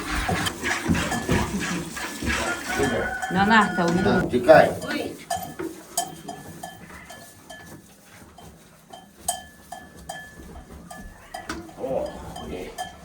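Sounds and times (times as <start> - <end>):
animal bell clinking: 2.8 - 13.0.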